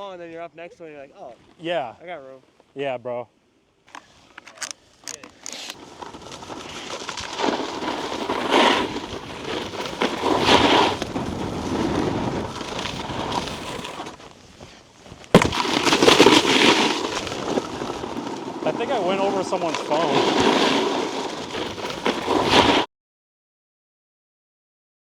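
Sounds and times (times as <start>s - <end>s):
snowboard edges scraping snow: 4.0s - 22.9s
sharp thud: 15.3s - 17.6s.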